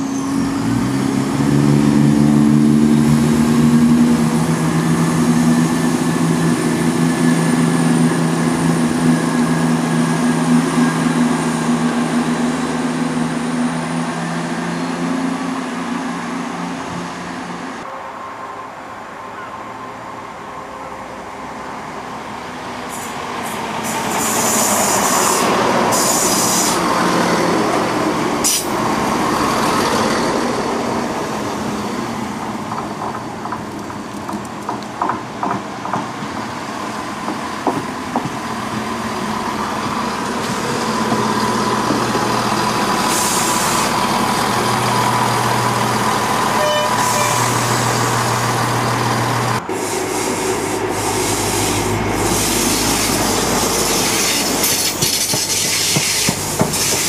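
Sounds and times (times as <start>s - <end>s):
diesel train moving: 0.0s - 57.0s
short hisses of air: 49.7s - 57.0s.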